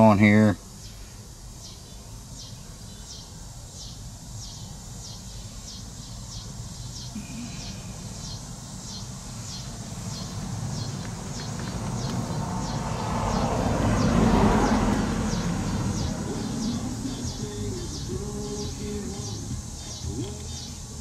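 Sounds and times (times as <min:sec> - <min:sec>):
bird chirping: 0:00.0 - 0:21.0.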